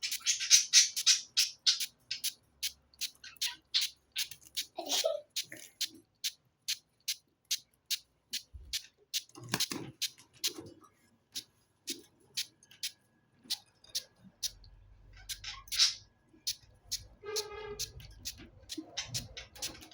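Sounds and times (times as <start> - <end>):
budgerigars chirping: 0.0 - 4.7, 13.5 - 17.1, 17.8 - 19.9.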